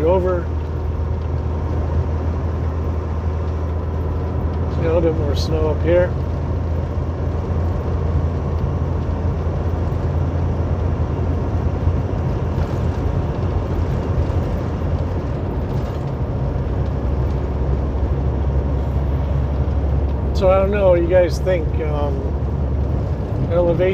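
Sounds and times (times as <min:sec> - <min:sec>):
car road and engine rumble: 0:00.0 - 0:23.9.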